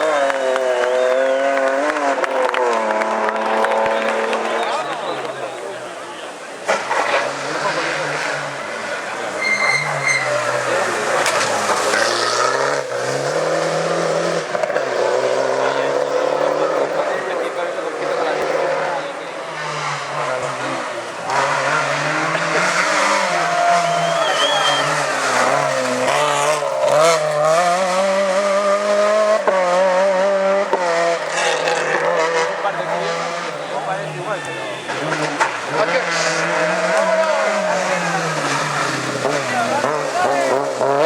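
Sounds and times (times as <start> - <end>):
rally car engine accelerating: 0.0 - 41.0.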